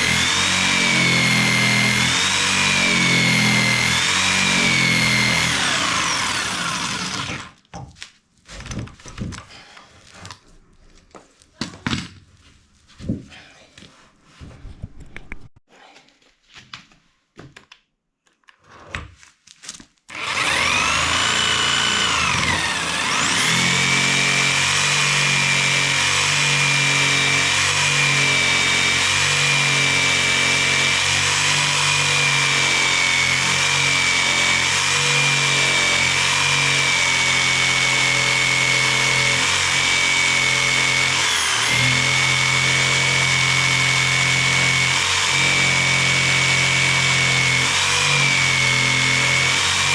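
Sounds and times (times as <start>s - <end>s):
jigsaw sawing through timber: 0.0s - 7.6s, 20.1s - 49.9s.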